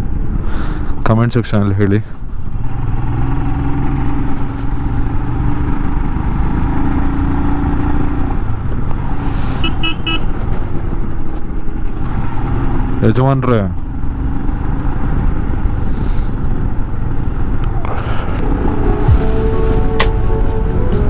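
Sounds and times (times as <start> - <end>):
road and wind noise: 0.0 - 21.0
motorcycle engine running: 2.2 - 13.1
vehicle horn beeps: 9.6 - 10.4.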